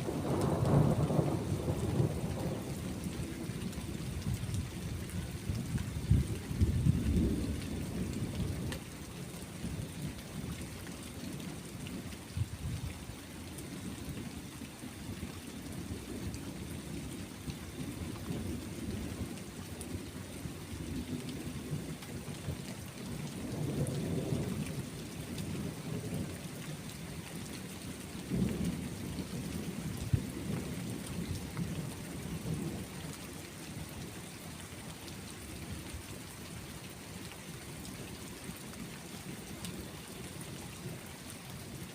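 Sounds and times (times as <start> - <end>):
rolling thunder: 0.0 - 3.5
steady rain: 0.0 - 41.9.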